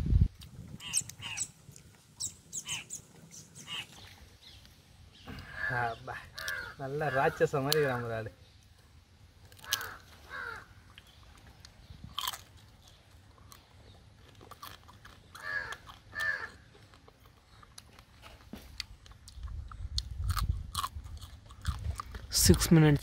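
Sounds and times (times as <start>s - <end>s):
crows cawing: 0.8s - 1.4s, 5.3s - 8.0s, 9.6s - 10.8s, 15.3s - 16.8s
person chewing: 10.9s - 23.0s.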